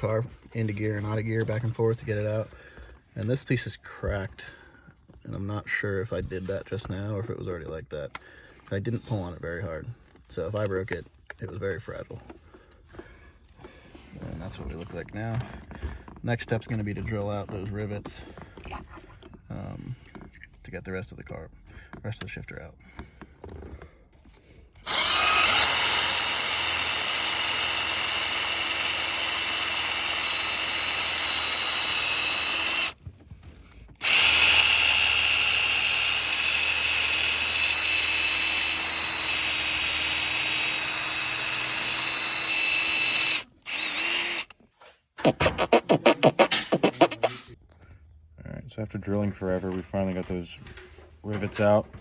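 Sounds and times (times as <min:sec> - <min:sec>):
power drill whining: 0:24.2 - 0:44.6, 0:45.3 - 0:47.6.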